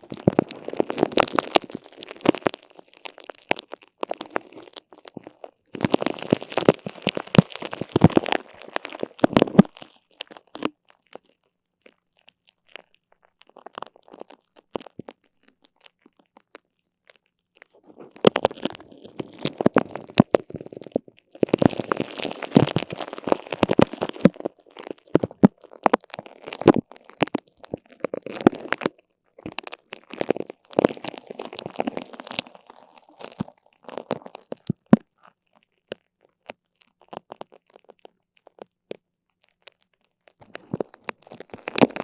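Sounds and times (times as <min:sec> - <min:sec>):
sticky crackling and peeling: 0:00.0 - 0:11.4, 0:17.6 - 0:35.7, 0:40.4 - 0:42.0.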